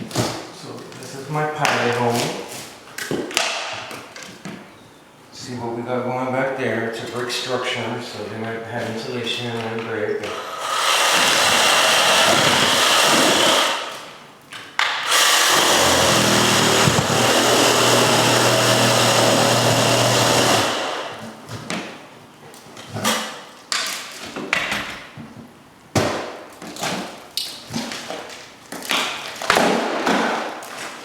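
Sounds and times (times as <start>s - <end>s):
power tool cutting into wall: 10.3s - 14.1s, 15.0s - 21.3s.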